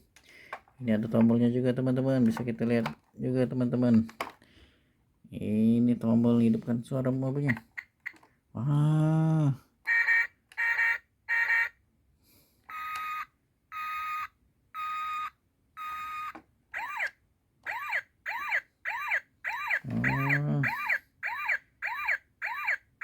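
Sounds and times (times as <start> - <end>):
toy electronic siren: 9.9 - 11.8, 12.7 - 23.0
short electronic tones: 19.8 - 21.0.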